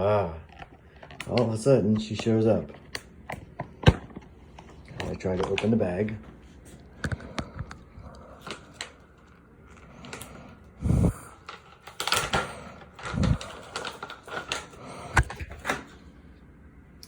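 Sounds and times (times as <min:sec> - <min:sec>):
plastic packaging crinkling: 0:06.8 - 0:16.0.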